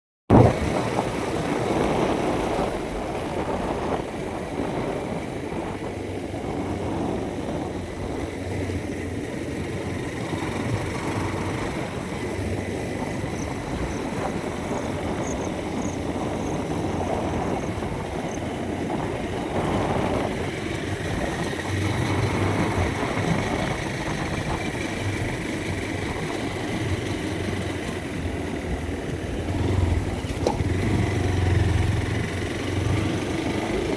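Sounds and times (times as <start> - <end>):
road and wind noise: 0.3 - 33.9
vehicle engine hum: 0.4 - 33.9.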